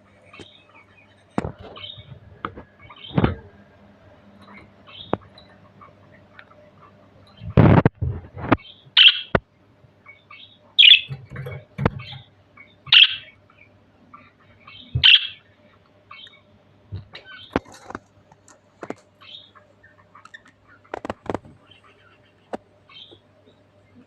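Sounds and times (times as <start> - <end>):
budgerigar chirping: 8.6 - 9.4, 10.0 - 11.2, 12.0 - 16.5, 19.2 - 21.0, 21.6 - 23.2.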